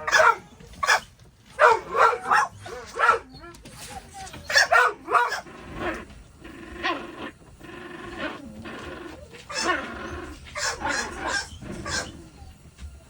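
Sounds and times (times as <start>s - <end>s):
dog vocalizing: 4.2s - 12.6s.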